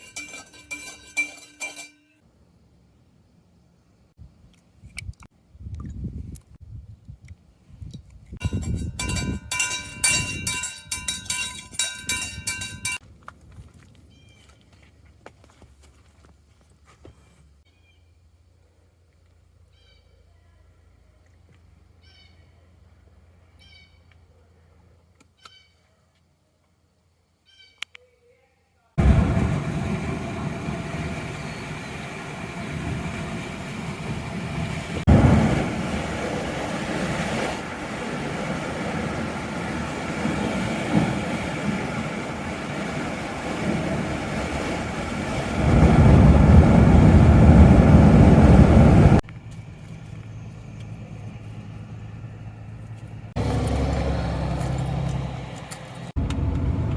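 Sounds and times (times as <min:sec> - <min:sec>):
metal rattling and clinking: 0:00.0 - 0:02.2, 0:08.4 - 0:13.0
vehicle engine and road rumble: 0:08.0 - 0:25.6, 0:29.0 - 0:56.9.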